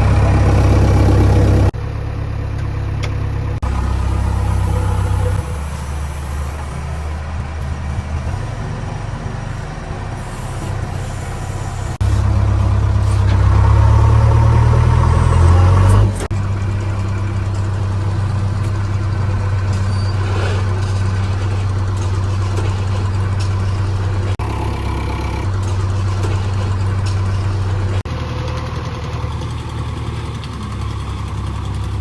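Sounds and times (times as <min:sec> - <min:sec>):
diesel engine humming: 0:00.0 - 0:32.0.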